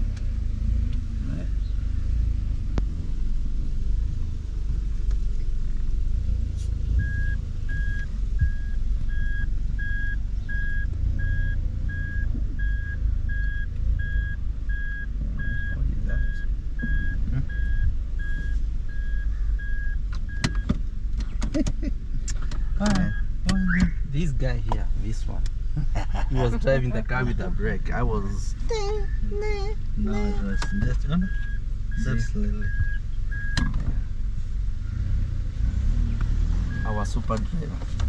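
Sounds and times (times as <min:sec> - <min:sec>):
truck engine and road rumble: 0:00.0 - 0:38.0
vehicle warning beeper: 0:07.0 - 0:20.7, 0:22.8 - 0:24.0, 0:30.0 - 0:33.7, 0:36.7 - 0:37.2.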